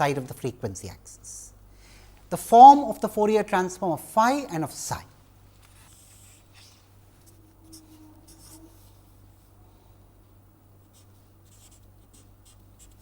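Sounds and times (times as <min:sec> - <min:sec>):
low electrical hum: 0:00.0 - 0:13.0
pen scratching on paper: 0:05.9 - 0:08.9, 0:10.9 - 0:13.0.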